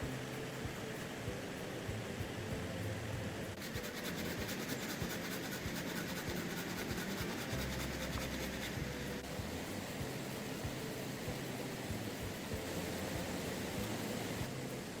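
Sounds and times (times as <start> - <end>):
rasping scrape on wood: 3.6 - 9.2.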